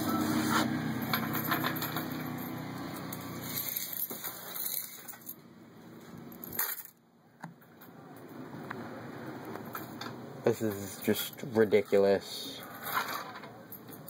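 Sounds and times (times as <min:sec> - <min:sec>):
coins dropping into boat: 0:06.3 - 0:07.0.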